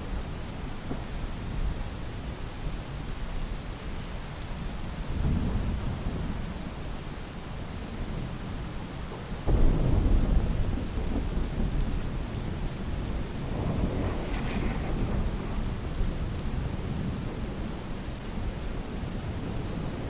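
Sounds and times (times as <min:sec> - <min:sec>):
heavy rain: 0:00.0 - 0:20.0
thunder rumbling: 0:09.5 - 0:20.0.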